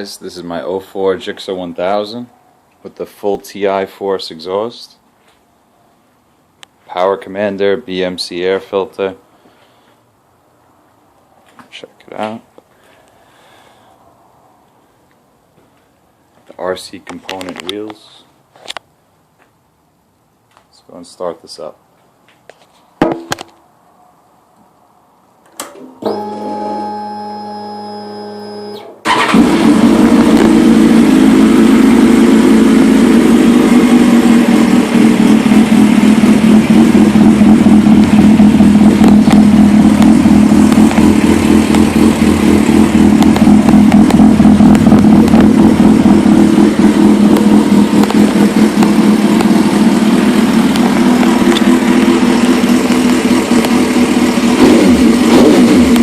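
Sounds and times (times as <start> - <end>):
motorcycle engine running: 29.1 - 56.0.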